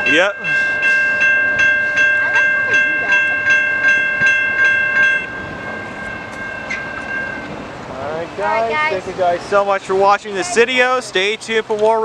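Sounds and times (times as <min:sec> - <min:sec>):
railroad crossing bell ringing: 0:00.0 - 0:09.0.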